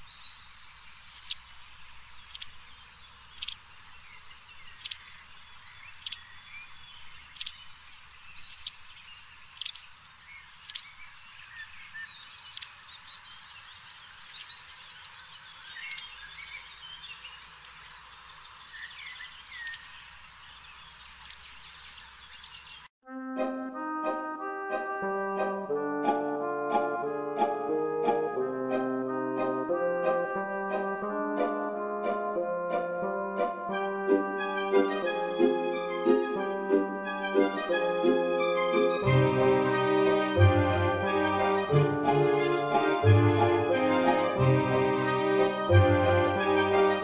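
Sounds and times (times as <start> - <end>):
birds singing: 0.0 - 22.9.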